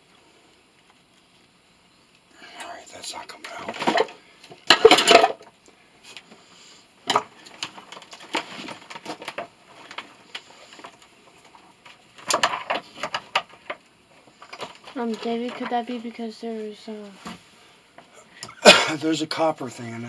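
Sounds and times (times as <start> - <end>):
metal tools clanking on motor: 4.7 - 5.4.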